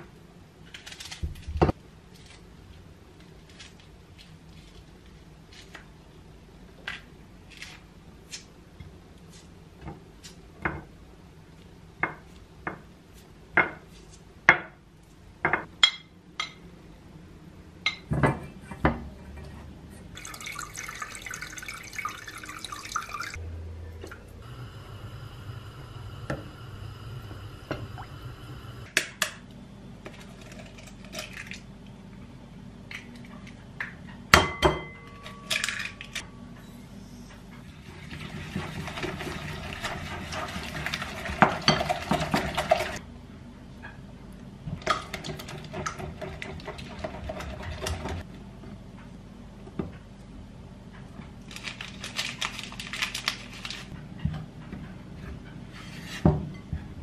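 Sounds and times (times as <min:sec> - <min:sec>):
water running: 0:20.2 - 0:23.4, 0:24.4 - 0:28.9, 0:37.9 - 0:43.0
steady hum: 0:23.2 - 0:29.0.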